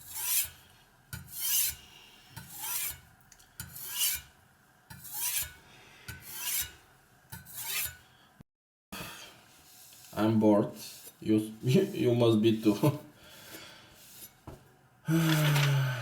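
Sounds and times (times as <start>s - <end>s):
knife scraping on sharpening stone: 0.0s - 0.6s, 1.2s - 1.8s, 2.4s - 3.0s, 3.6s - 4.3s, 4.9s - 8.0s.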